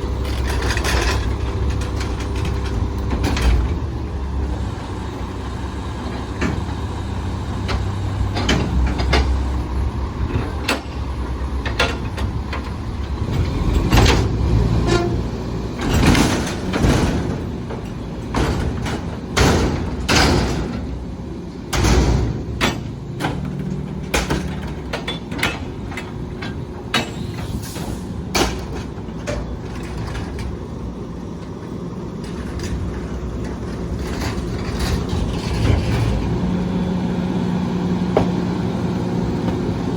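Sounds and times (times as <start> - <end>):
garbage truck engine running: 0.0 - 39.9
metal bangs and clanks: 6.1 - 30.6.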